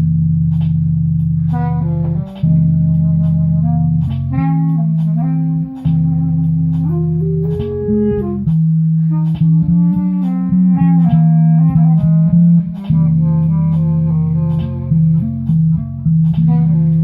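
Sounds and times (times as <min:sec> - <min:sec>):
band playing instrumental music: 0:06.7 - 0:08.5.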